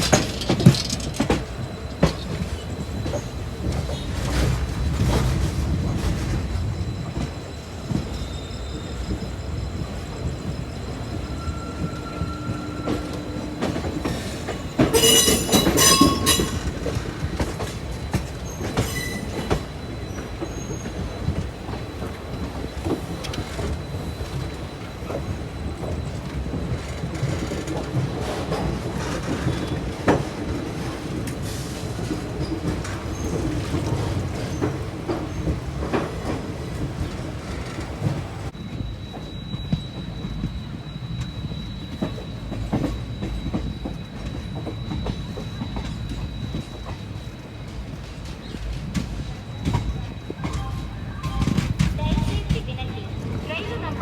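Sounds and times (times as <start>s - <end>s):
train rumbling on track: 0.0s - 54.0s
high-pitched wheel squeal: 7.8s - 17.4s, 18.1s - 21.3s.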